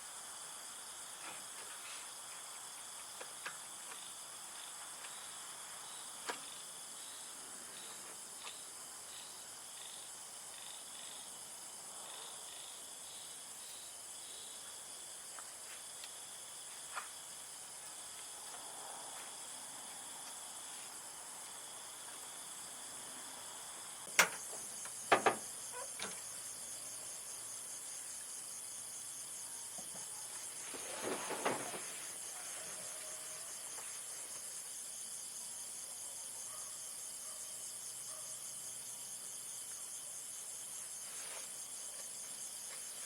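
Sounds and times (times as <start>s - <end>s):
insects chirring: 0.0s - 43.0s
sharp knocks: 25.1s - 25.4s.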